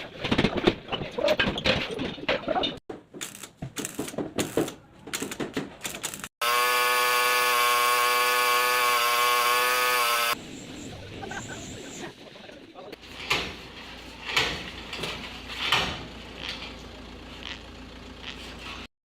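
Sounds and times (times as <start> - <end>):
clattering and knocking: 0.0 - 6.3
power tool whining: 6.4 - 10.4.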